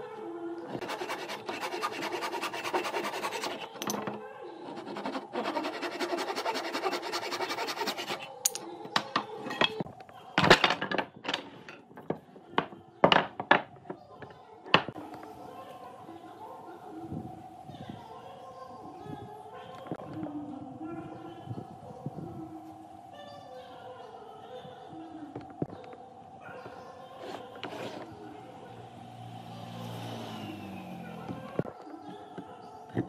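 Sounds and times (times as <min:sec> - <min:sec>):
scraping and rubbing on wood: 0:00.7 - 0:08.6, 0:27.2 - 0:28.2.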